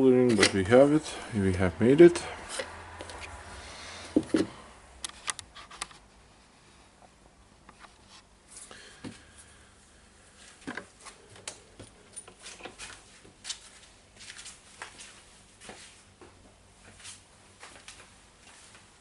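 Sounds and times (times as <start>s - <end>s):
rustles of hands handling parts: 0.0s - 9.6s, 10.2s - 19.0s
small clicks of handling parts: 4.3s - 6.0s.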